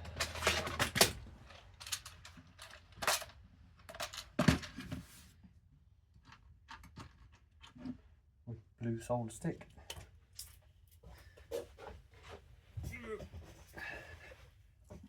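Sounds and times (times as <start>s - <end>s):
small parts clicking and knocking: 0.0s - 4.8s.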